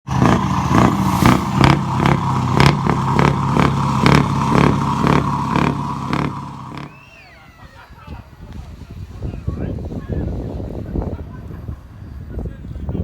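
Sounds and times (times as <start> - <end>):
large truck engine running: 0.0 - 7.0
sharp regular engine knock: 1.6 - 6.9.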